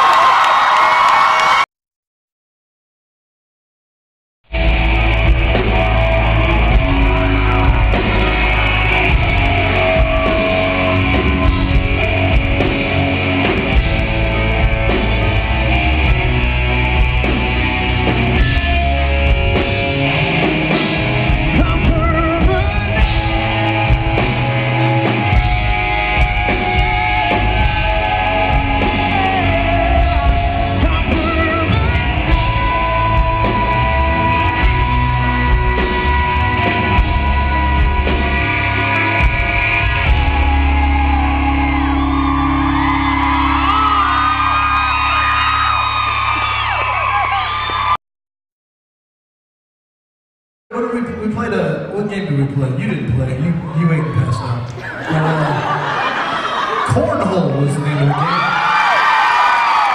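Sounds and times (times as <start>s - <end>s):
live rock band playing: 4.5s - 47.8s
person singing: 21.4s - 42.7s.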